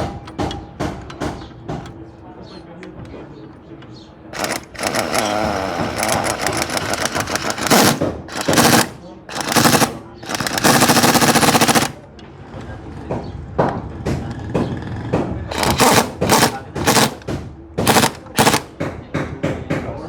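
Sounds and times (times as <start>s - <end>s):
pneumatic impact wrench rattling: 4.4s - 12.0s, 15.5s - 18.8s.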